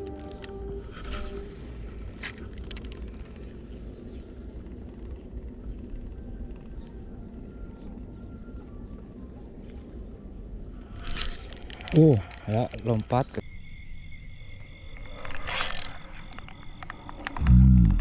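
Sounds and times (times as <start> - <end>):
insects trilling: 0.0 - 17.9
low rumble: 17.4 - 18.0.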